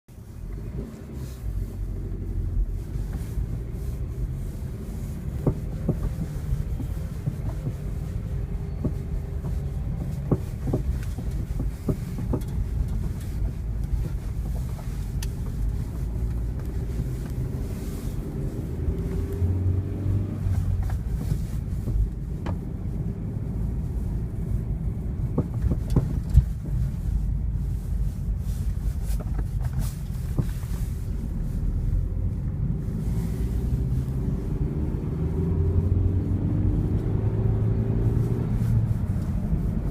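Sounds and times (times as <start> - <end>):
car road rumble: 0.0 - 39.9
rattles and knocks: 5.2 - 17.5, 25.2 - 26.9.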